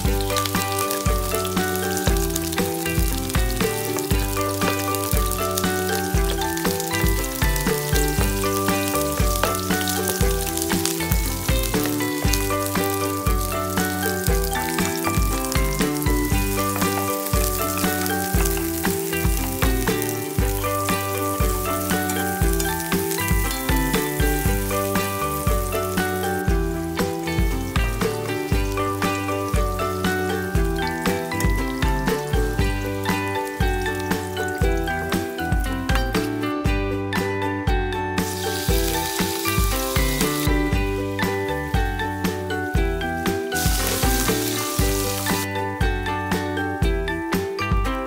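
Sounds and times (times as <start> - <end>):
onions sizzling and crackling: 0.0 - 36.4, 38.2 - 45.5
background music with a beat: 0.0 - 48.0.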